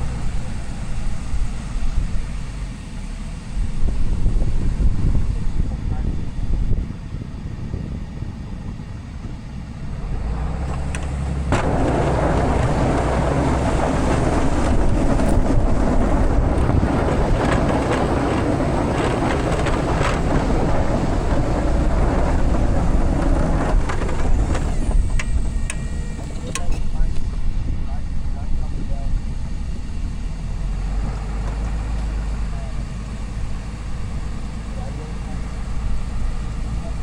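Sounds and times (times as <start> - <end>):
truck engine rumbling: 0.0 - 37.0
loud rushing noise: 9.8 - 25.6.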